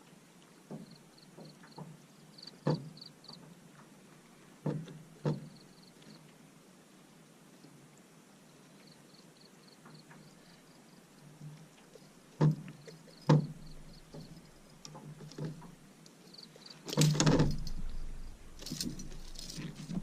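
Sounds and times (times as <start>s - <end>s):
knocks and taps on boat: 2.6s - 3.5s, 4.6s - 5.6s, 12.4s - 15.8s
noisy clatter: 16.9s - 20.0s.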